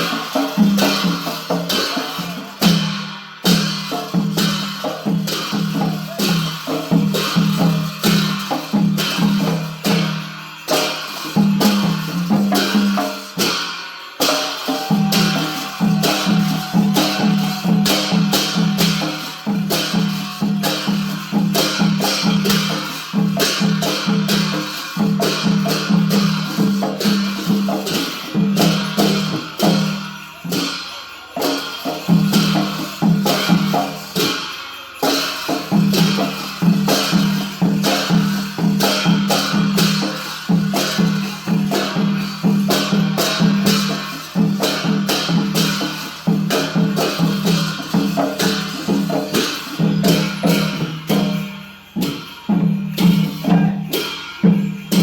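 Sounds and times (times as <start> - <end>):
crashing cymbal strikes: 0.0 - 55.0
low drum beating fast: 14.7 - 24.3.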